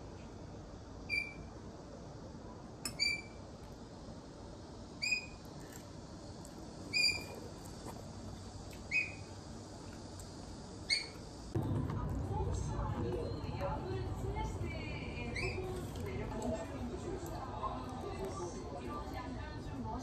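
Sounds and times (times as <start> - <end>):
bird chirping: 8.9 - 9.3.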